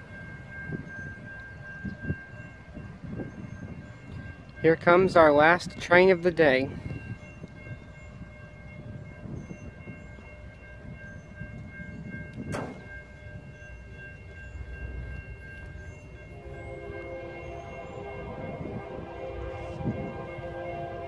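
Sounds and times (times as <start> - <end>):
train low rumble: 0.0 - 21.0
train horn: 16.2 - 21.0.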